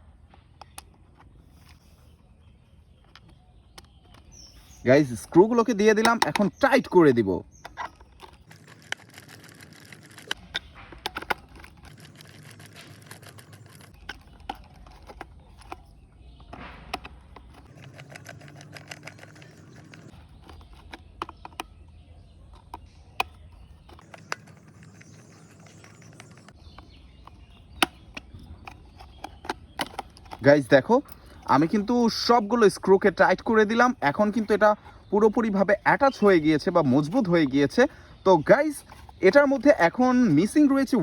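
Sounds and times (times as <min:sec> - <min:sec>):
screwdriver clicks and scraping: 0:05.9 - 0:06.8, 0:07.5 - 0:21.8, 0:22.5 - 0:32.2.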